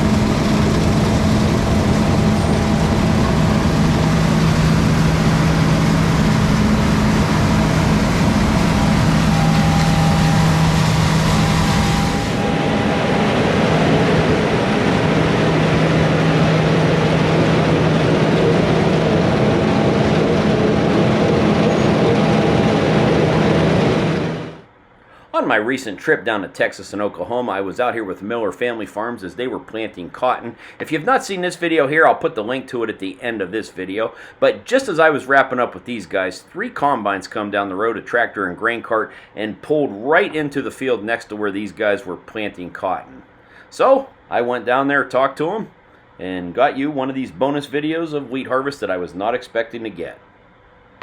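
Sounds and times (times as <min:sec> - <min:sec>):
harvester engines droning: 0:00.0 - 0:25.3.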